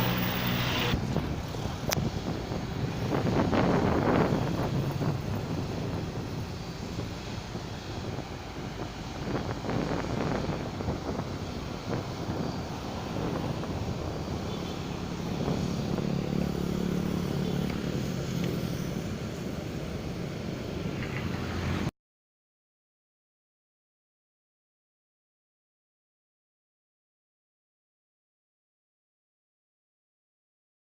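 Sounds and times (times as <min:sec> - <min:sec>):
jet engines running: 0:00.0 - 0:21.7.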